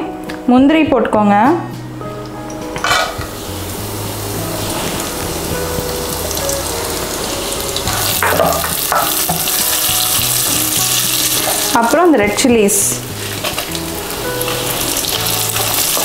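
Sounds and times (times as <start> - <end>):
background music: 0.0 - 16.0
nuts sizzling in hot oil: 3.2 - 16.0.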